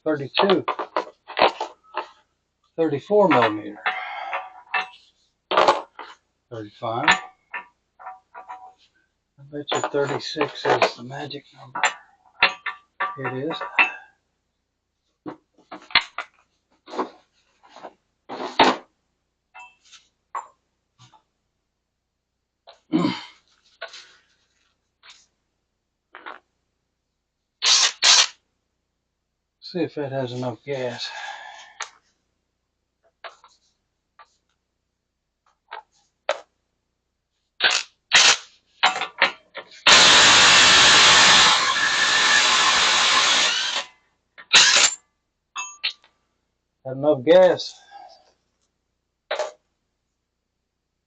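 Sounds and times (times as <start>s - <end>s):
metal tools clinking: 9.6s - 14.1s
impact wrench bursts: 27.6s - 28.4s, 37.6s - 38.5s, 39.7s - 43.9s, 44.5s - 45.0s.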